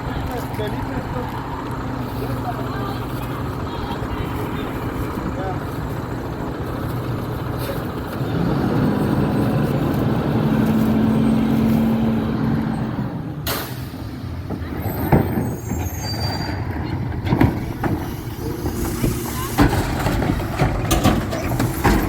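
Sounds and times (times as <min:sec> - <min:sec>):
garbage truck engine drone: 0:00.0 - 0:22.0
faint high squeals: 0:14.7 - 0:17.0.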